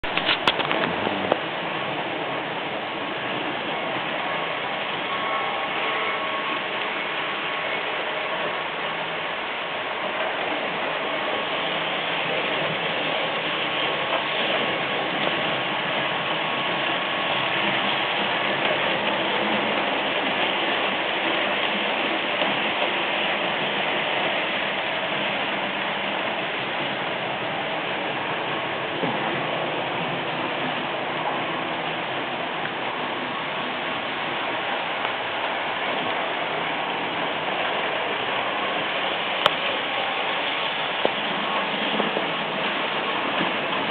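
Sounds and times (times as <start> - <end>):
model train whirring rattle: 0.1 - 43.9.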